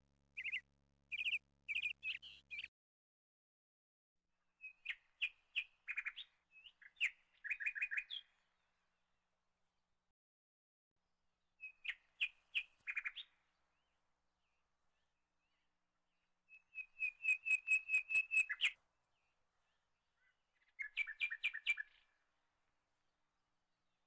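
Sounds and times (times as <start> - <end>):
bird chirping and trilling: 0.4 - 2.7, 4.6 - 8.3, 11.6 - 13.4, 16.5 - 18.8, 20.2 - 22.0.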